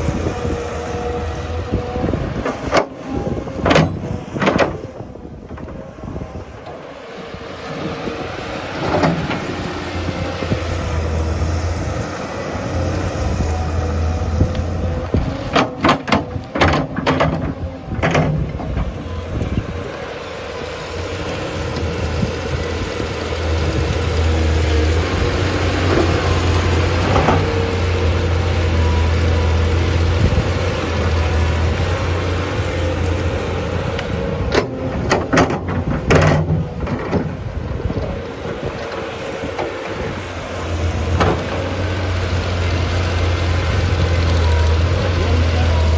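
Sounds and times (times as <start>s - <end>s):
diesel engine running: 0.0s - 45.9s
metal knocks and clanks: 3.5s - 4.9s, 15.2s - 19.0s, 34.5s - 37.5s.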